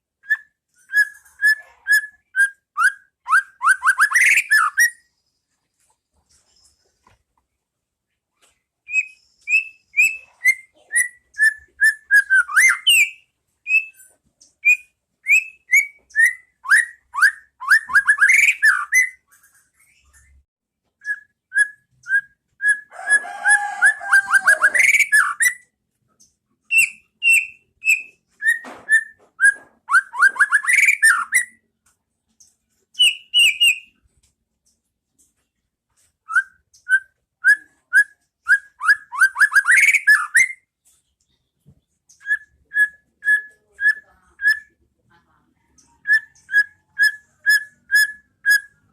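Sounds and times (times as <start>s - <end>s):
bird singing whistled notes: 0.2s - 5.1s, 8.9s - 14.0s, 14.6s - 19.2s, 21.0s - 22.9s, 26.7s - 31.6s, 33.0s - 34.0s, 36.3s - 40.7s.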